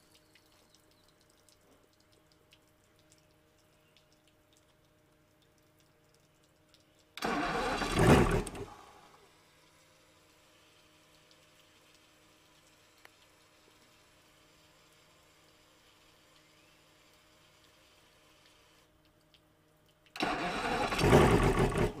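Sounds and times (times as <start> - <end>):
outboard engine cranking: 7.2 - 8.8, 20.2 - 22.0
faint steady hum: 8.4 - 20.8.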